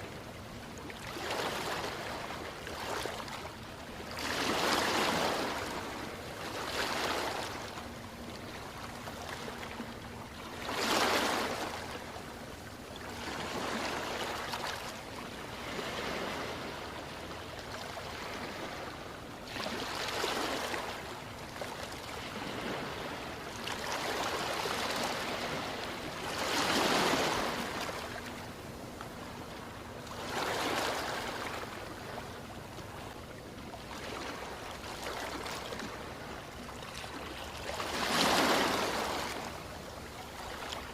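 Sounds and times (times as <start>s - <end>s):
ocean waves washing in: 15.4s - 33.0s, 37.0s - 40.9s.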